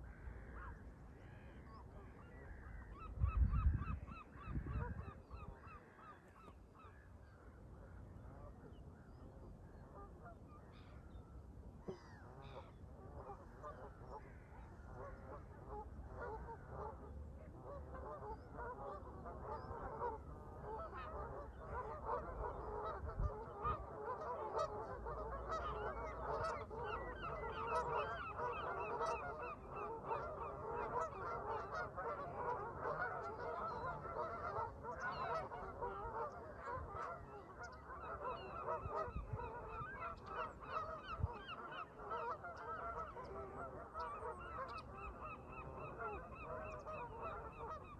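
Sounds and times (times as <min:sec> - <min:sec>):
geese honking: 0:12.0 - 0:47.9.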